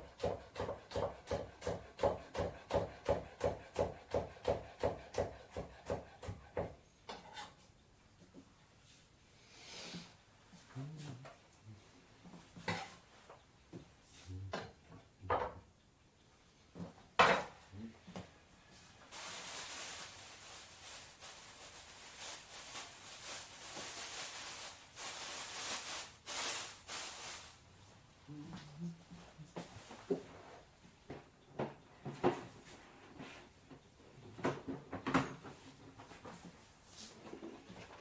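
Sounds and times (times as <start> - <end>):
rushing rustling noise: 19.1 - 27.6.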